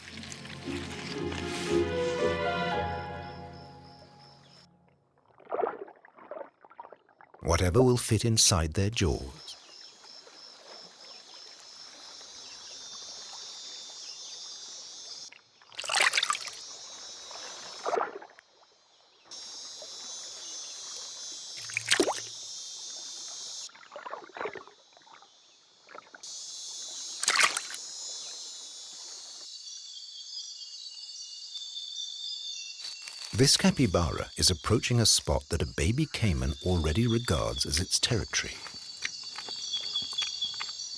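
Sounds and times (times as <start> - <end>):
splashes in water: 0.0 - 2.0, 15.8 - 16.6, 21.6 - 22.3, 27.2 - 27.8
high insect buzzing: 32.8 - 33.4, 38.6 - 40.9.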